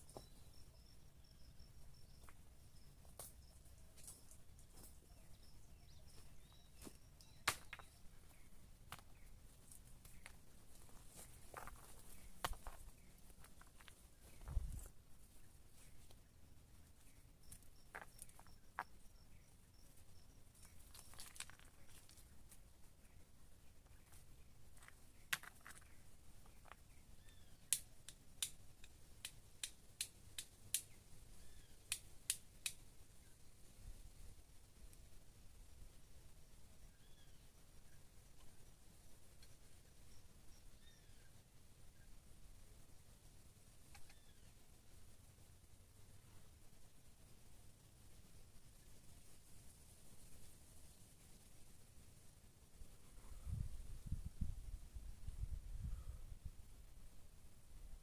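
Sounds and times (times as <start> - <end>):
faint high chirps: 0.0 - 9.4
dry wood snapping and popping: 7.4 - 7.9, 20.8 - 22.3, 24.8 - 27.0, 27.6 - 31.0
sticks snapping and clicking: 27.7 - 31.0, 31.9 - 32.8.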